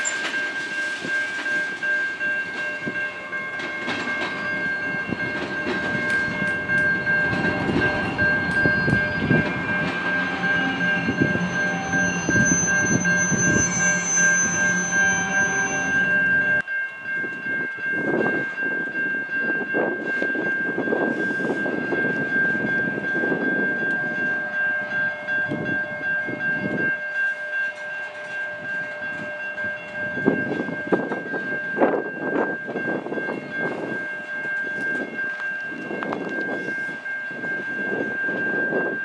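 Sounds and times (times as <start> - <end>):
wheels clanking over track: 0.0 - 16.3
steady high-pitched tone: 0.0 - 16.7
freight train rumbling: 0.0 - 39.0.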